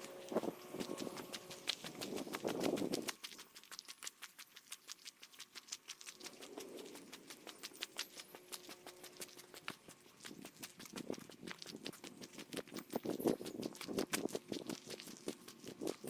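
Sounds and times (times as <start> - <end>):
sped-up footsteps on a trail: 0.0 - 16.0.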